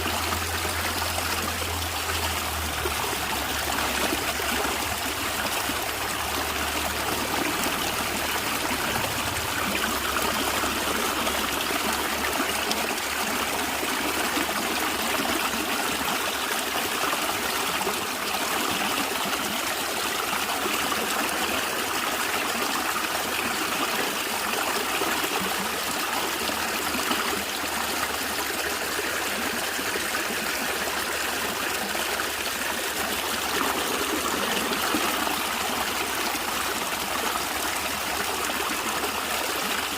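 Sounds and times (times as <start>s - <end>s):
stream water gurgling: 0.0s - 39.9s.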